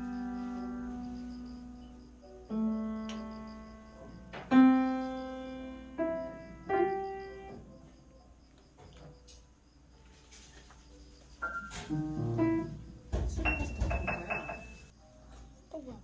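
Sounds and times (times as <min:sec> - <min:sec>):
slow piano notes: 0:00.0 - 0:08.1, 0:11.4 - 0:15.7.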